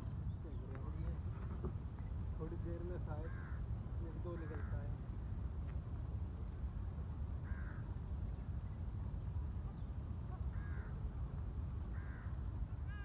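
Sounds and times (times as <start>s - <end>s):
crow cawing: 3.2s - 3.7s, 4.3s - 4.9s, 7.4s - 7.8s, 10.5s - 11.0s, 11.9s - 13.0s.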